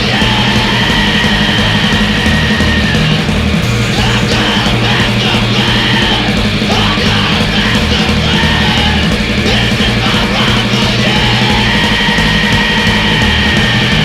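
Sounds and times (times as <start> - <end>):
bass: 0.0 - 14.0
drums: 0.0 - 14.0
electric guitar: 0.0 - 14.0
person yelling vocals: 4.0 - 14.0.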